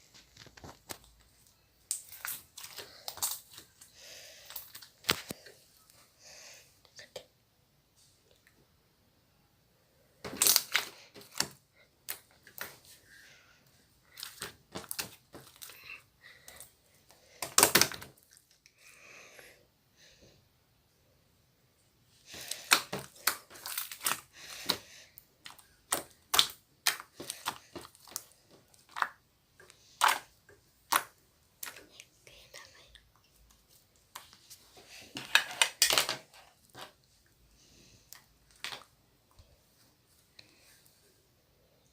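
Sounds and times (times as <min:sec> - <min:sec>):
slime clicking and crackling pops: 0:25.5 - 0:28.3.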